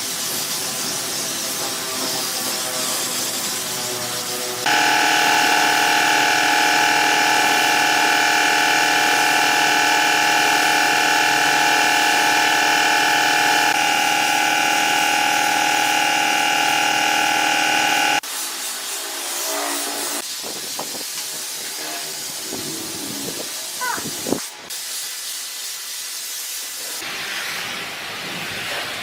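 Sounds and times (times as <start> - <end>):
power tool motor whining: 4.7 - 18.2.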